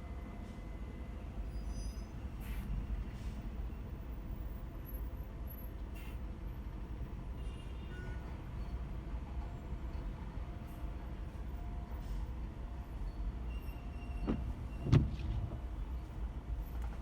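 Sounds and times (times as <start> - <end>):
car engine and tyres rumbling: 8.7 - 17.0.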